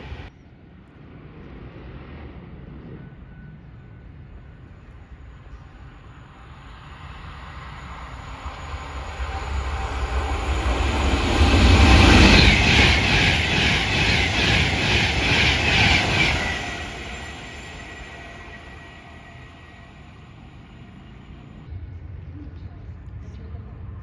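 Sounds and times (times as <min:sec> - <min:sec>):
train passing with wheel clicks: 0:04.8 - 0:21.7.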